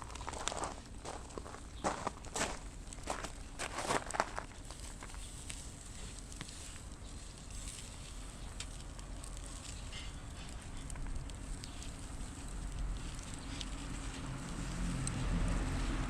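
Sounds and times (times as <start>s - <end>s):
wood fire crackling: 0.0s - 16.0s
sharp pops of fire: 4.3s - 15.8s.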